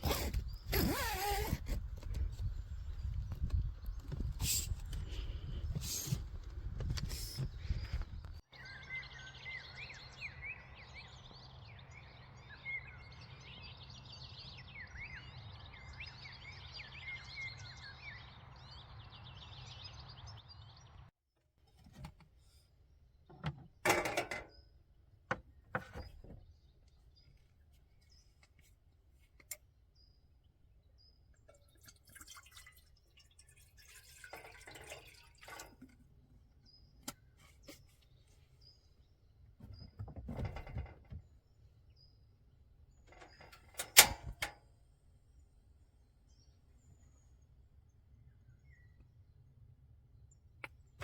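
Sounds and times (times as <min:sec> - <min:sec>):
faint bird chirps: 0:07.1 - 0:21.0
objects knocking and clattering: 0:23.3 - 0:24.5.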